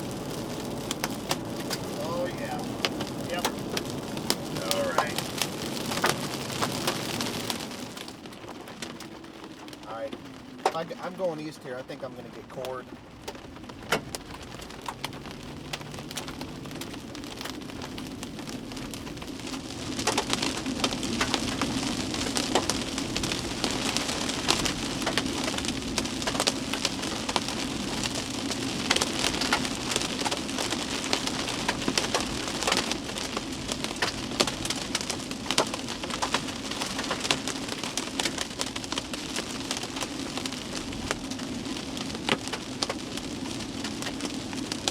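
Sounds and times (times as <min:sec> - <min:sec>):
vehicle hum: 0:00.0 - 0:07.9, 0:09.6 - 0:33.3
rain and hail on vehicle roof: 0:00.0 - 0:44.9.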